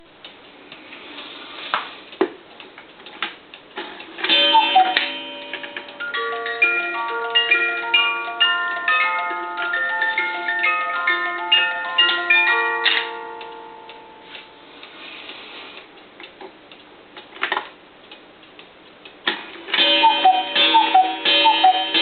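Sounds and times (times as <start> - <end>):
clock mechanism clicks: 2.1 - 22.0
clock ticking: 2.1 - 22.0
music box tune: 4.2 - 14.8, 19.8 - 22.0.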